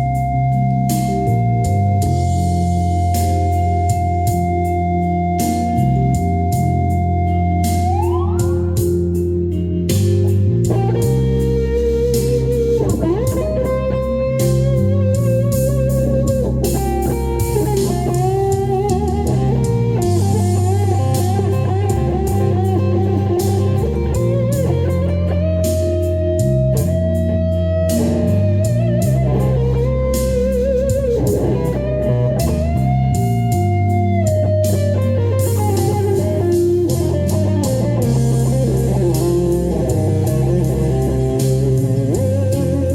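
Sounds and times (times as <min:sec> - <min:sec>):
bass line: 0:00.0 - 0:42.9
lead guitar melody: 0:00.0 - 0:42.9
drums: 0:12.1 - 0:27.3, 0:27.9 - 0:42.9.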